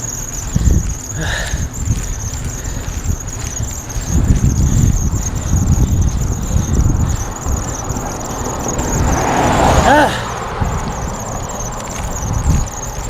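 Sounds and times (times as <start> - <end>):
high-pitched squeal: 0.0 - 13.0
wind rumble on microphone: 0.0 - 13.0.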